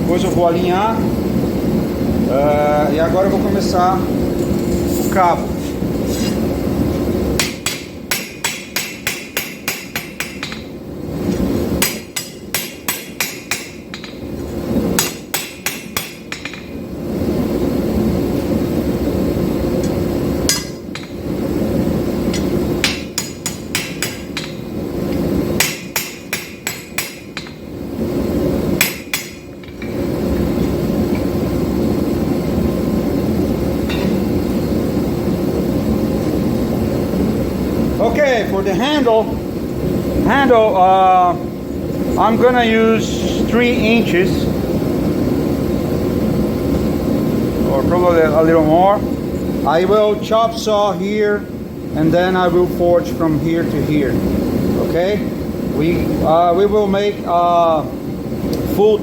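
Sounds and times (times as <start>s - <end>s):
hammer ringing on anvil: 7.4s - 10.7s, 11.8s - 14.2s, 15.0s - 16.7s, 22.8s - 24.6s, 25.6s - 27.6s, 28.8s - 29.9s.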